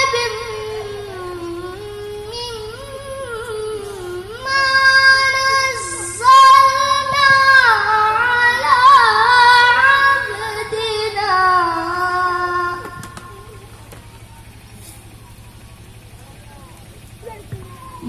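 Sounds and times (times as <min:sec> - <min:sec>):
person chanting melodically: 0:00.0 - 0:13.9.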